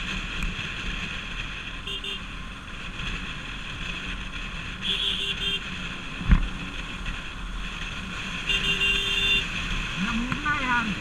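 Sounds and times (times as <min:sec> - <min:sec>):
motorcycle engine and road noise: 0:00.0 - 0:11.0
vehicle horn beeps: 0:01.9 - 0:02.2, 0:04.8 - 0:05.7, 0:08.5 - 0:09.5.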